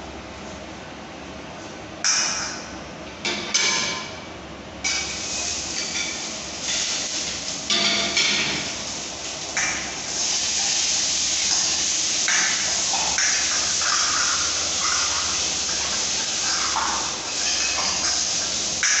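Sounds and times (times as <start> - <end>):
water running from a tap: 5.0 - 19.0.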